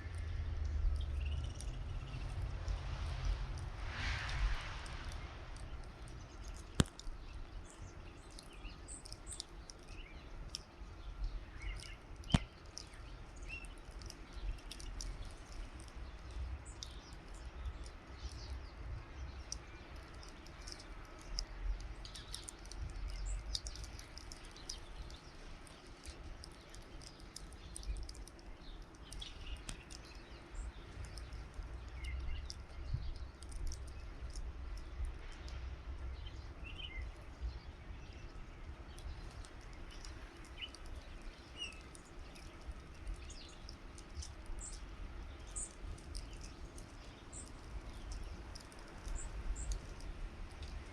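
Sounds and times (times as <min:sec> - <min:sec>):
low rumble: 0:00.0 - 0:07.8
small songbirds chirping: 0:00.0 - 0:50.9.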